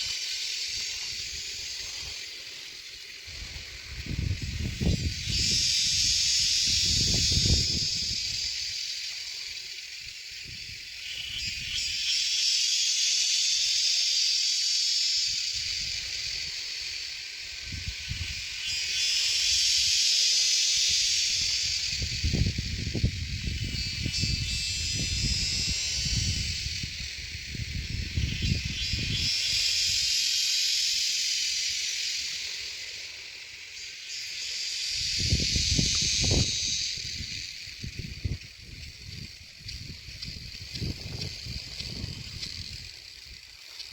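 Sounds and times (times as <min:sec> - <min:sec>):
high hissing drone: 0:00.0 - 0:43.9
wind buffeting microphone: 0:03.3 - 0:08.7, 0:21.3 - 0:29.6, 0:35.0 - 0:43.4.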